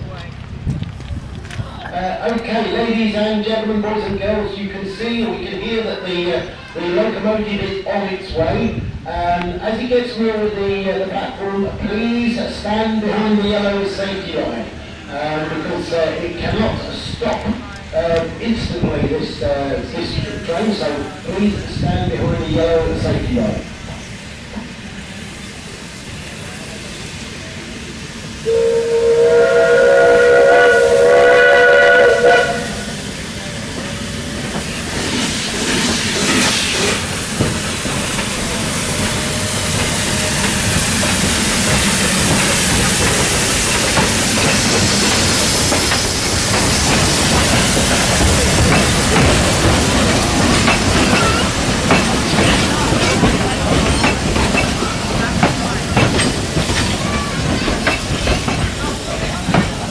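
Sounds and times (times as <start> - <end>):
locomotive steam hiss: 2.8 - 59.9
train wheels clattering on rails: 16.0 - 59.9
steam whistle blast: 28.4 - 33.0.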